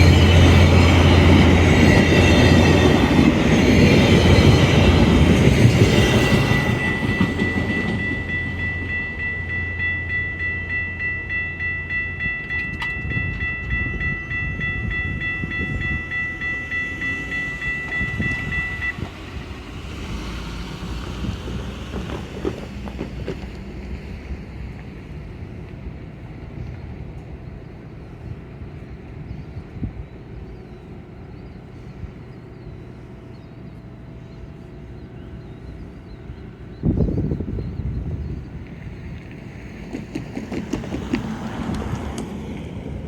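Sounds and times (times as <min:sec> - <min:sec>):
steady high ringing tone: 0:00.0 - 0:19.6
passenger train passing: 0:00.0 - 0:43.0
rhythmic clickety-clack: 0:21.4 - 0:23.6, 0:39.2 - 0:42.9.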